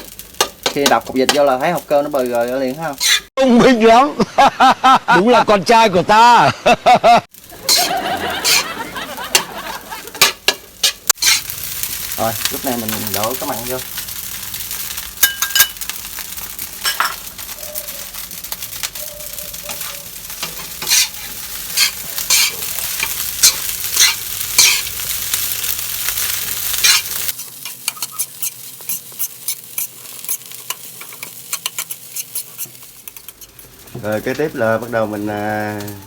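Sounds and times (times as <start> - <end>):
rice sizzling in a pan: 0.0 - 3.4, 7.3 - 36.0
spatula scraping a pan: 2.9 - 3.3, 7.7 - 9.4, 10.2 - 11.9, 13.9 - 34.8.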